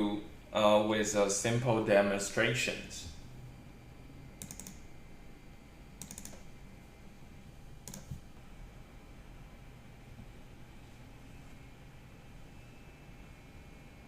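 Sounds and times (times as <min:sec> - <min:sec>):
low steady hum: 0:00.0 - 0:14.0
faint computer clicking: 0:04.4 - 0:04.9, 0:06.0 - 0:06.5, 0:07.8 - 0:08.3.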